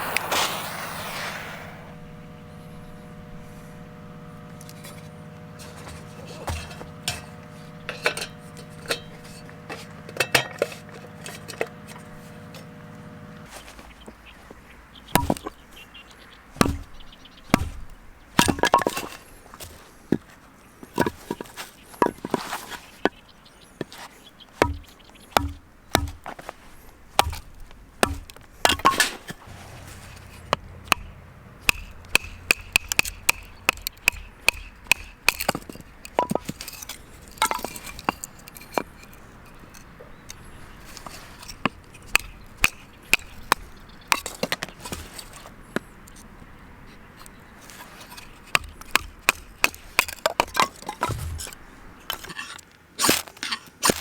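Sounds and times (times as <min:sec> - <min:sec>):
blade chopping against wood: 0:24.6 - 0:26.5, 0:27.2 - 0:38.9, 0:48.5 - 0:52.3.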